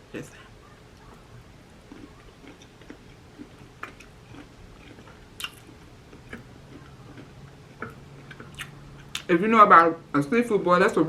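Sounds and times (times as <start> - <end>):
wet chewing and smacking: 0.8 - 9.3.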